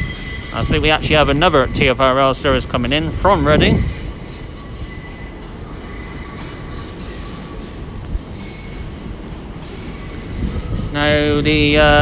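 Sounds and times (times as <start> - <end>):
high-pitched wheel squeal: 0.0 - 2.0, 3.2 - 8.9, 9.6 - 11.3
electric train rumbling: 0.0 - 12.0.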